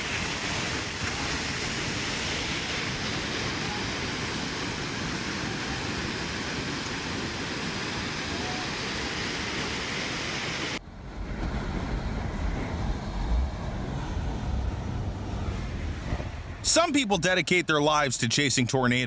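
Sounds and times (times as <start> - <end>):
river water rushing: 0.0 - 17.0
wind buffeting microphone: 10.7 - 16.7.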